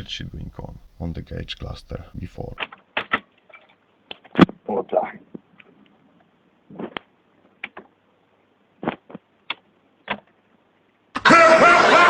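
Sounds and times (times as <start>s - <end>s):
loud man's voice: 0.0s - 2.6s.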